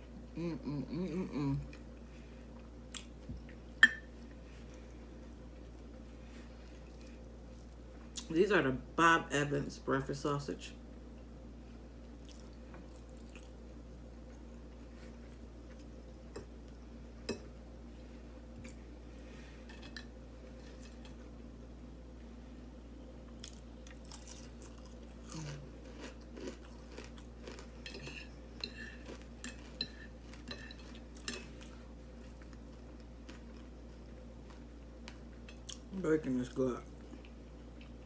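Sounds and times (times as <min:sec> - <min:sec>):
faint hum: 0:00.0 - 0:38.0
chewing with mouth clicks: 0:02.6 - 0:03.6, 0:12.2 - 0:13.6, 0:23.3 - 0:35.9.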